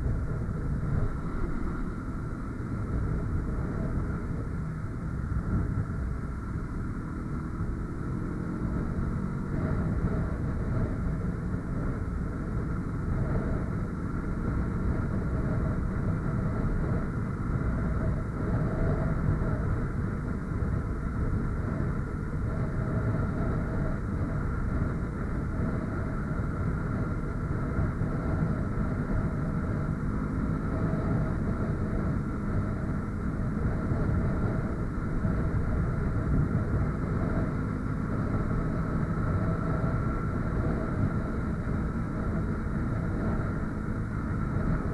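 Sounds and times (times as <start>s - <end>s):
motorcycle engine drone: 0.0s - 44.9s.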